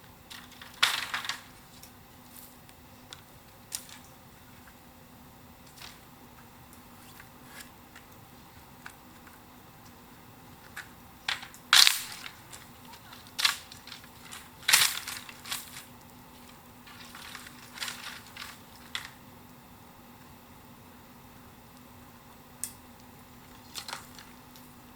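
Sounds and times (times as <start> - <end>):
dry bamboo cracking: 0.3 - 4.1, 10.6 - 19.2, 23.5 - 24.7.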